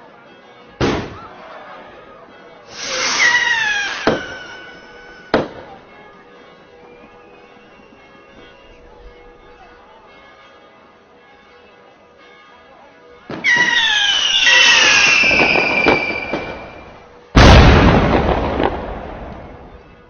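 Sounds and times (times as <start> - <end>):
quiet background music: 0.0 - 20.0
firework bang: 0.8 - 1.2, 2.7 - 5.8, 13.3 - 19.8
firework whistle falling in pitch: 2.7 - 5.8, 13.3 - 17.5.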